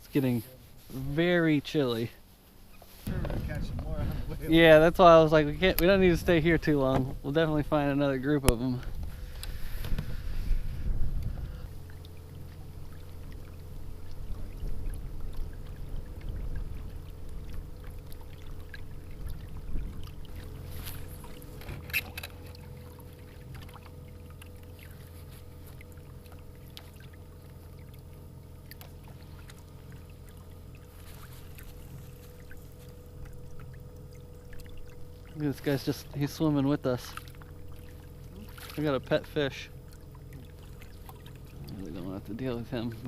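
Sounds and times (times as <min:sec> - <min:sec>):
small boat motor humming: 0:00.0 - 0:43.0
water and wind rumble: 0:00.0 - 0:43.0.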